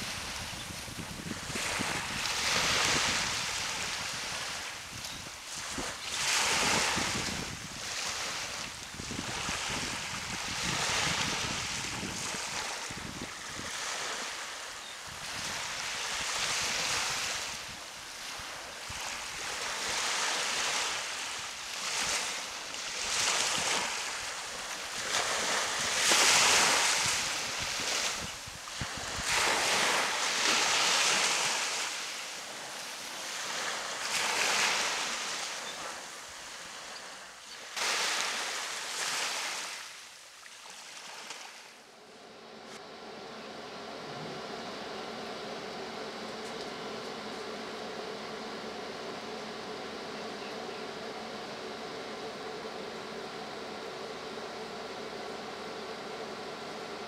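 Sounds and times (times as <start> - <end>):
wind buffeting microphone: 0.0 - 5.9, 6.5 - 13.8
ocean surf breaking on beach: 0.0 - 50.1.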